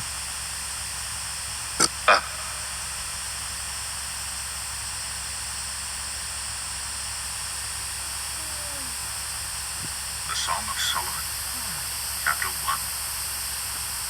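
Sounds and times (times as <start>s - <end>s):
steady hiss: 8.2s - 13.8s.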